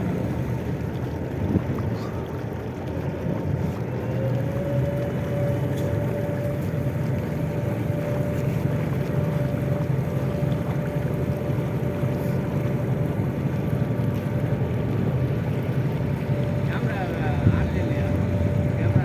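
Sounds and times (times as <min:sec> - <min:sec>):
boat engine droning: 0:00.0 - 0:19.0
wind buffeting microphone: 0:00.0 - 0:19.0.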